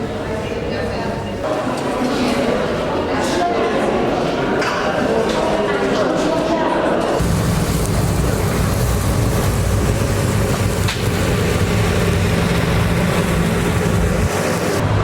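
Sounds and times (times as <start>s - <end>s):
mechanical hum with rushing noise: 7.2s - 15.0s.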